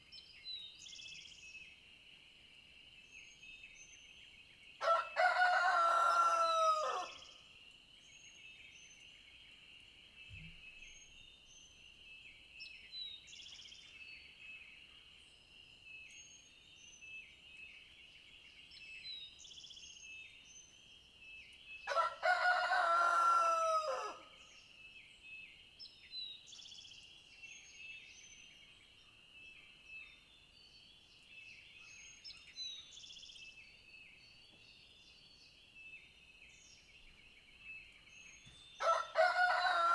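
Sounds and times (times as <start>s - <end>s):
rooster crowing: 4.8s - 7.2s, 21.9s - 24.3s, 38.8s - 39.9s.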